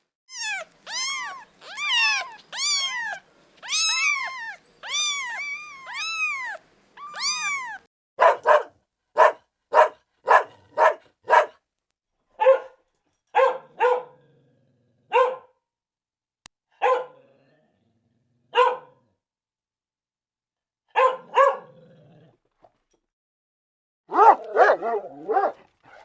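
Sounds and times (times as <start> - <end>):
cat meowing: 0.3 - 7.9
dog barking: 8.2 - 11.6, 12.4 - 14.2, 15.1 - 15.6, 16.7 - 17.2, 18.5 - 19.0, 20.9 - 21.8, 24.1 - 26.0.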